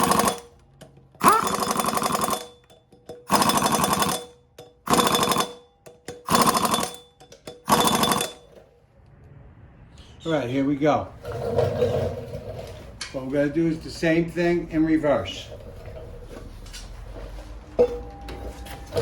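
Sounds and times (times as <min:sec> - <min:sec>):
impact wrench hammering: 0:00.0 - 0:08.6.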